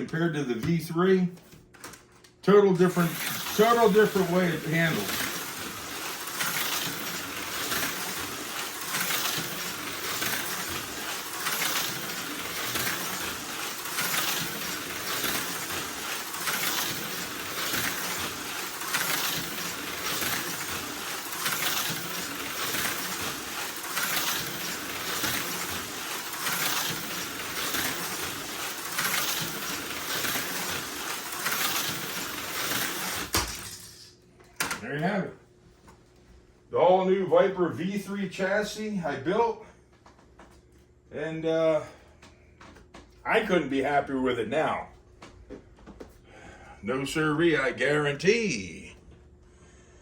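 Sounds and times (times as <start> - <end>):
slot car whirring buzz: 2.4 - 34.1.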